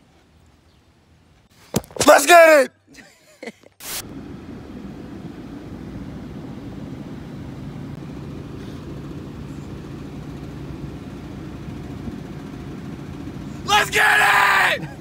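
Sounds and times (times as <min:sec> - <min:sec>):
car engine running at low revs: 0:04.0 - 0:13.7.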